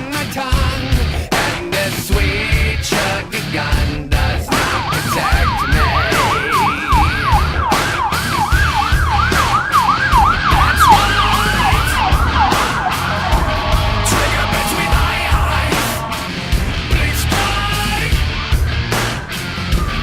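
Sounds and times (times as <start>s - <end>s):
fire truck siren yelping: 4.5s - 18.4s
steady siren tones: 4.5s - 20.0s
steady low rumble: 10.3s - 20.0s.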